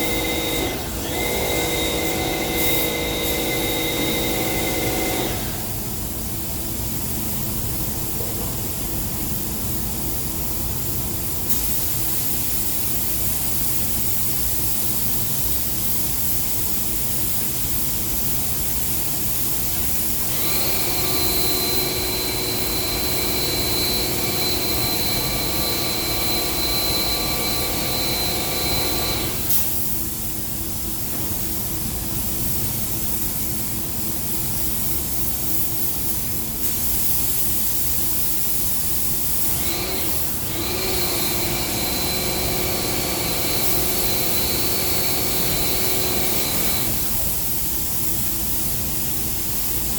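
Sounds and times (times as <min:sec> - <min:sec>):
spray gun hissing: 0:00.0 - 0:05.9, 0:17.6 - 0:30.2.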